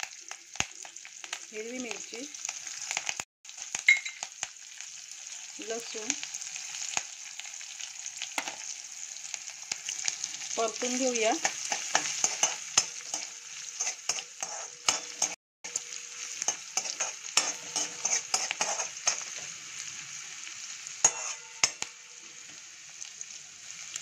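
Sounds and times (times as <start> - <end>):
spices sizzling in hot oil: 0.0 - 24.0
spoon scraping a metal pan: 11.4 - 19.6, 21.0 - 22.3.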